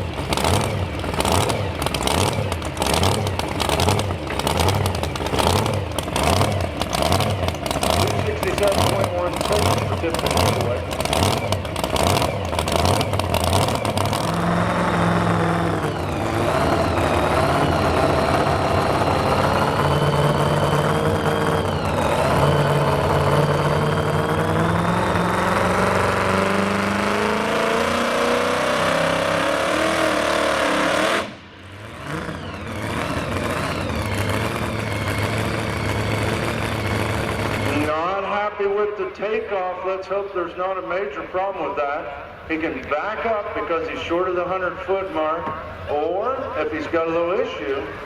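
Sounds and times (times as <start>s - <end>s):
truck engine running hard: 0.0s - 48.0s
announcer speaking: 8.0s - 10.9s, 37.7s - 48.0s.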